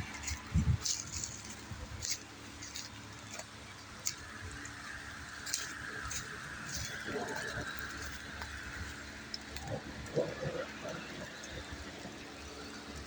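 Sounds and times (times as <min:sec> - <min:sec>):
footsteps on wet ground: 0:00.0 - 0:12.3
light ticks and patter: 0:00.0 - 0:13.0.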